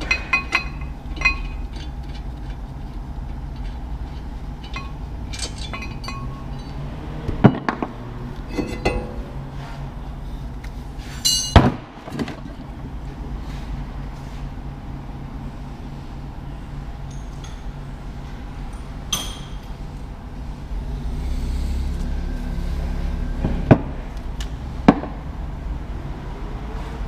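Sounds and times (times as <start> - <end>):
metal tools clinking and knocking: 0.0 - 7.8, 8.5 - 9.4, 11.2 - 11.6, 17.0 - 17.8, 18.7 - 19.8
steady low hum: 0.0 - 26.7.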